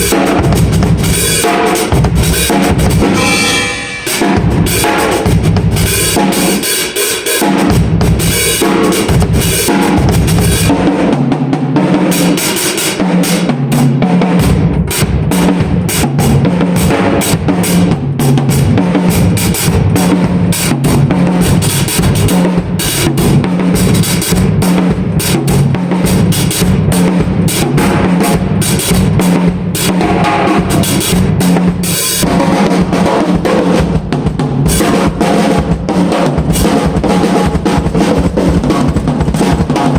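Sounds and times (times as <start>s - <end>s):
drum kit groove: 0.0s - 39.9s.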